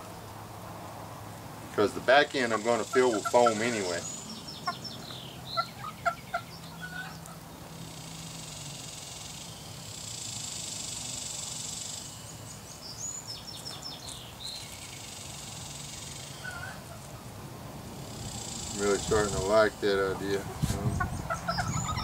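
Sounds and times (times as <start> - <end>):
steady hiss: 0.0 - 4.4, 7.2 - 21.0
poultry calling: 2.3 - 10.2, 13.6 - 17.4, 18.0 - 22.0.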